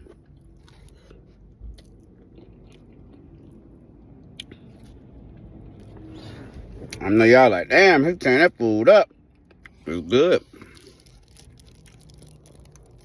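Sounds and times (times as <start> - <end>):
person chewing food: 0.0 - 7.0, 10.4 - 13.0.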